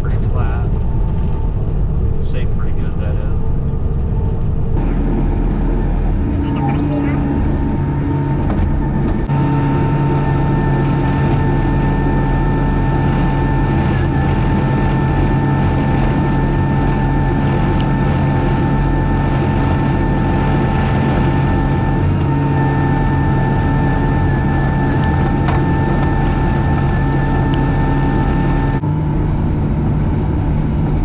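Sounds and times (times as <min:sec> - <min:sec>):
high whine: 0:00.0 - 0:31.0
skid steer engine under load: 0:04.8 - 0:31.0
grader scraping gravel: 0:06.4 - 0:28.8.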